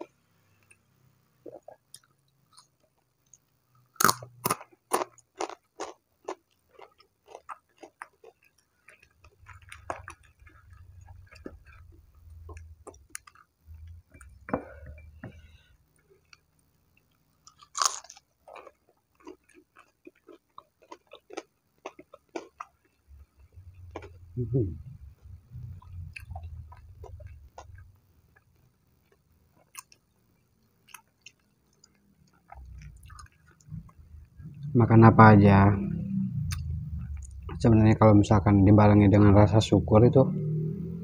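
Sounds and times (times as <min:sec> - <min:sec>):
chewing crispy fried food: 0:01.5 - 0:14.5, 0:15.4 - 0:35.0.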